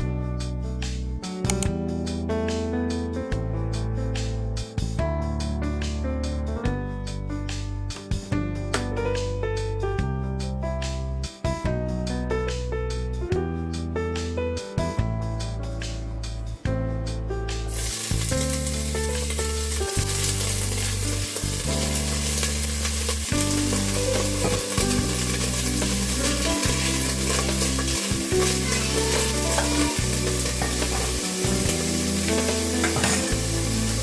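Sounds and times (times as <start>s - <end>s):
piano and bass music: 0.0s - 34.0s
food sizzling in a pan: 17.7s - 34.0s.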